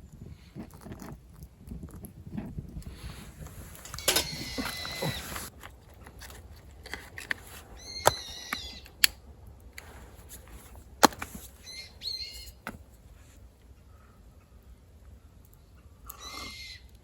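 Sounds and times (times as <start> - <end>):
bird calling: 3.8 - 5.5, 7.8 - 9.0, 11.6 - 12.7.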